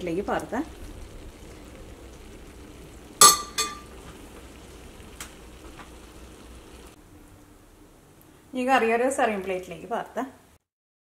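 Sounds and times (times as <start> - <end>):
curry sizzling in a pan: 0.0 - 10.0
sharp metallic clink: 3.2 - 3.9.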